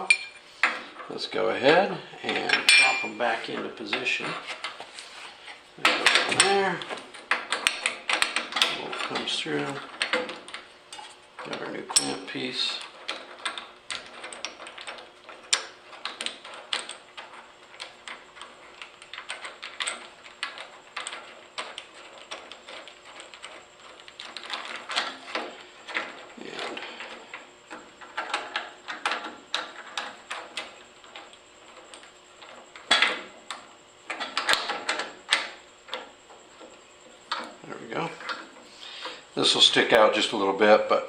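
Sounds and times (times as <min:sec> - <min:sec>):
small metal parts clinking: 0:02.2 - 0:03.3
metal clatter: 0:02.2 - 0:04.8.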